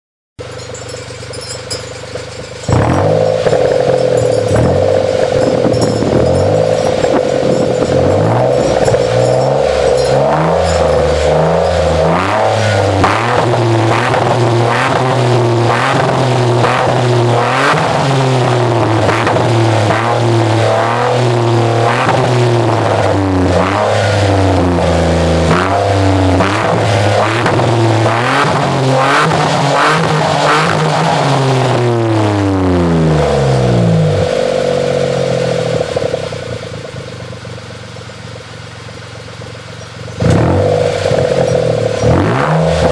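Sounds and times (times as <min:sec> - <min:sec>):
car engine revving: 0:00.4 - 0:42.9.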